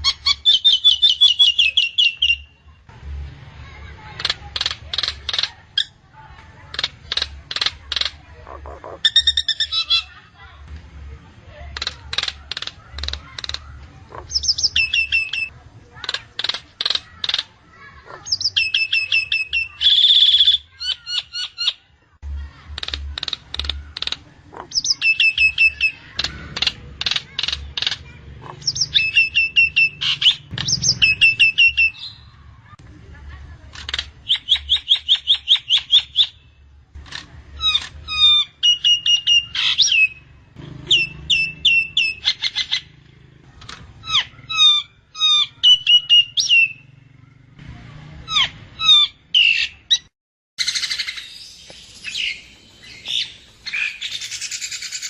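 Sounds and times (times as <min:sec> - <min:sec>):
myna calling with whistles: 0:00.0 - 0:02.6, 0:13.3 - 0:15.5, 0:18.1 - 0:21.8, 0:24.5 - 0:26.2, 0:27.4 - 0:32.4, 0:34.2 - 0:36.4, 0:37.6 - 0:43.0, 0:44.0 - 0:47.0, 0:48.3 - 0:55.0.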